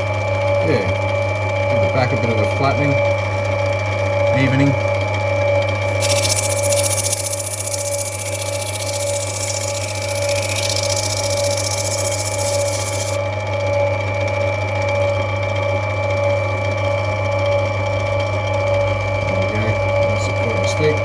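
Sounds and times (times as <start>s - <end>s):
grinding wheel motor humming: 5.8s - 13.2s
stone grinding hiss: 5.9s - 13.2s.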